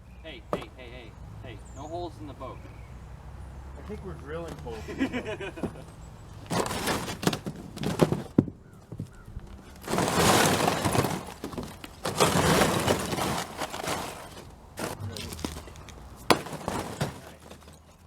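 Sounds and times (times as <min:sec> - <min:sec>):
ice cracking and shattering: 0:09.8 - 0:17.7.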